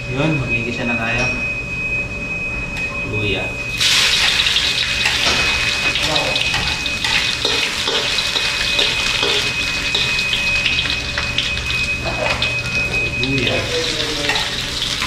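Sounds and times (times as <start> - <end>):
ginger sizzling in hot oil: 3.8 - 15.0.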